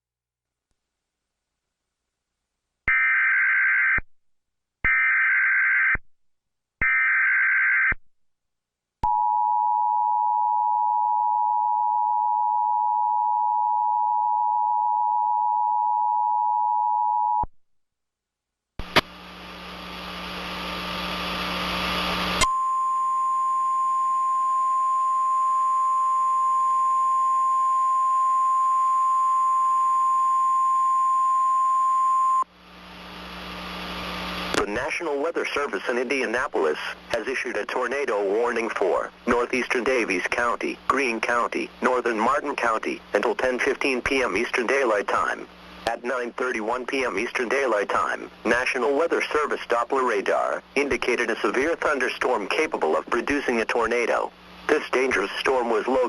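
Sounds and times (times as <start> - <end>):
static hiss: 18.8 - 22.4, 32.6 - 37.6.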